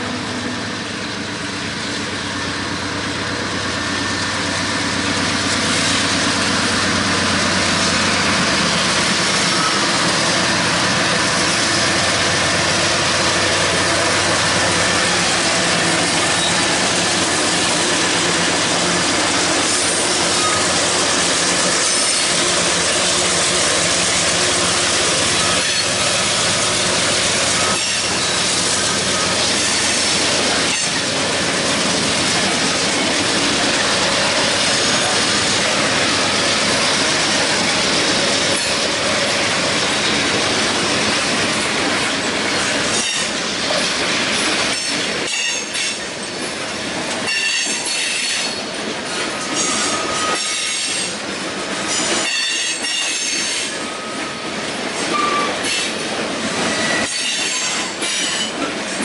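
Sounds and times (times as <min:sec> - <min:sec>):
diesel locomotive engines: 0:00.0 - 0:59.0
train wheels rolling on rail: 0:00.0 - 0:59.0.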